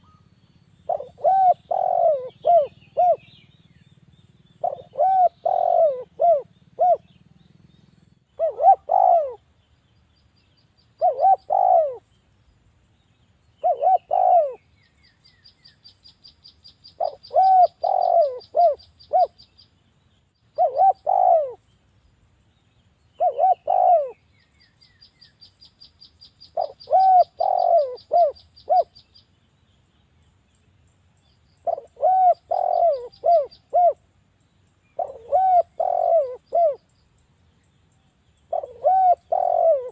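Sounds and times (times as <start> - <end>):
dove cooing: 0.9 - 3.4, 4.6 - 7.2, 8.4 - 9.5, 11.0 - 12.1, 13.6 - 14.7, 16.9 - 19.4, 20.6 - 21.6, 23.2 - 24.2, 26.5 - 28.9, 31.6 - 34.0, 35.0 - 36.9, 38.5 - 39.9.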